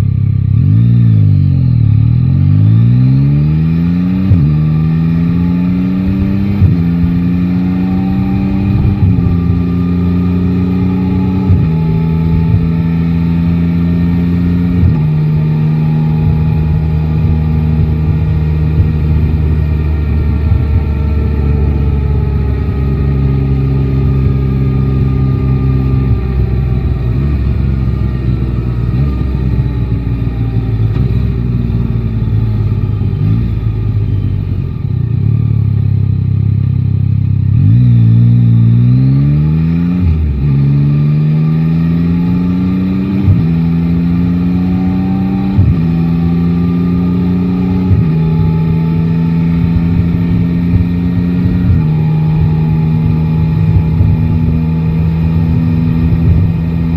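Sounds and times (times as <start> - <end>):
motorcycle engine revving through gears: 0.0 - 56.9.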